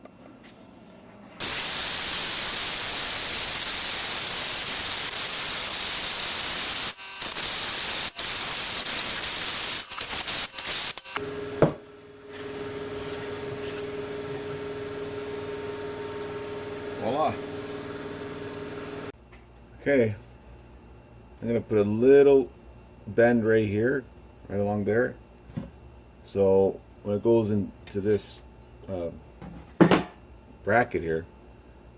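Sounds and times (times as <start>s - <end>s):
power tool cutting sheet metal: 1.4s - 11.2s.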